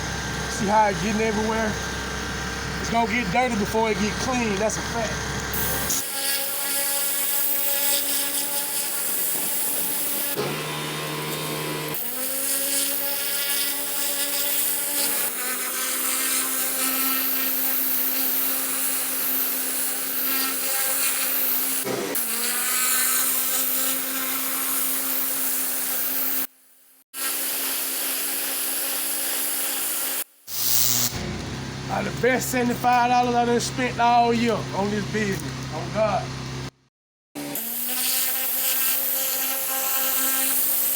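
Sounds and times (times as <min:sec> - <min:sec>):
pressure washer engine running: 0:00.0 - 0:06.0, 0:31.1 - 0:36.7
water spray blasting concrete: 0:00.5 - 0:26.4.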